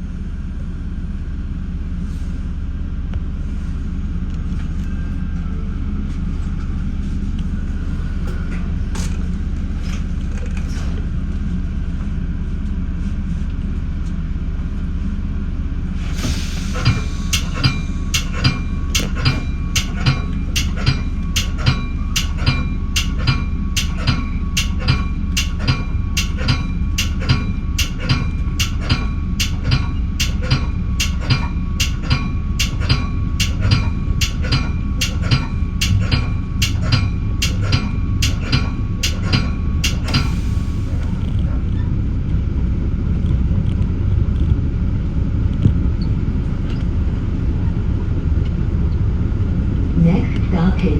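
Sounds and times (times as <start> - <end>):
train rumbling: 0.0 - 50.9
crossing warning bell ringing: 16.5 - 41.2.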